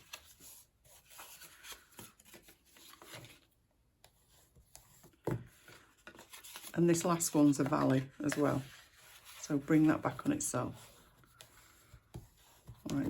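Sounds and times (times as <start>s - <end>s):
card rubbing and rustling: 0.0s - 3.6s, 4.2s - 13.0s.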